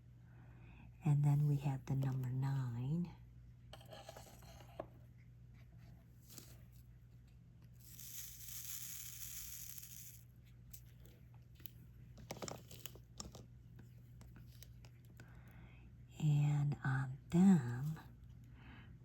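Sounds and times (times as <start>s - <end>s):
low electrical hum: 0.0s - 19.0s
small clicks and scratches: 7.3s - 15.3s.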